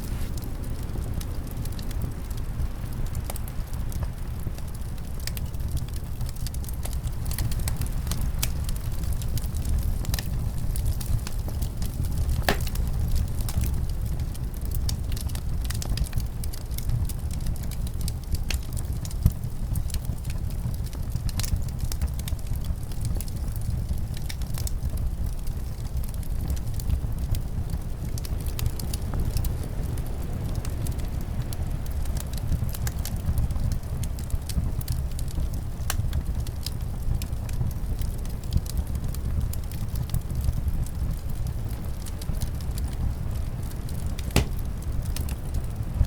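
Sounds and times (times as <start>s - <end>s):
low rumble of wind: 0.0s - 46.0s
wood fire crackling and popping: 0.0s - 46.0s.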